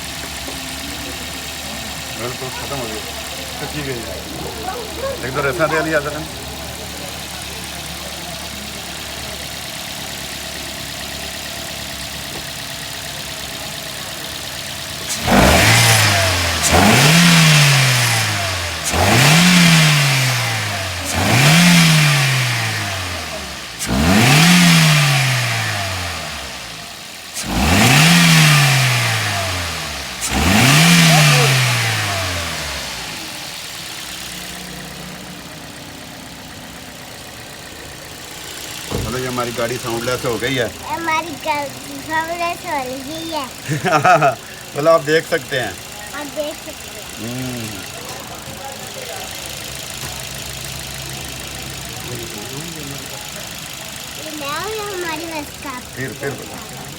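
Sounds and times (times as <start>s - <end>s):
car engine idling and revving: 0.0s - 56.9s.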